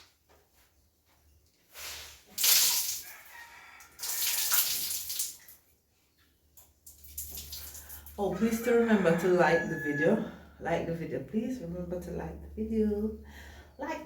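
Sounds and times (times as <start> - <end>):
water splashing and pouring: 1.8 - 3.3, 3.9 - 5.7, 6.8 - 8.2.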